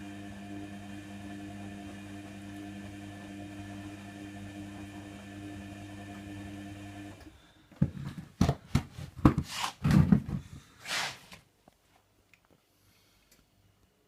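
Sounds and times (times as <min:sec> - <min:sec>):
washer-dryer motor hum: 0:00.0 - 0:07.3.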